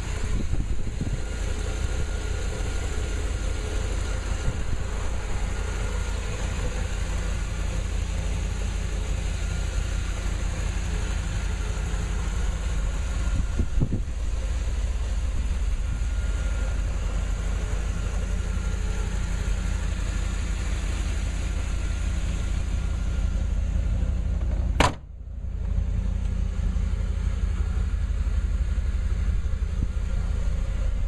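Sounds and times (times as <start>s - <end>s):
car engine idling: 0.0s - 31.0s
car hood slamming shut: 24.4s - 25.2s.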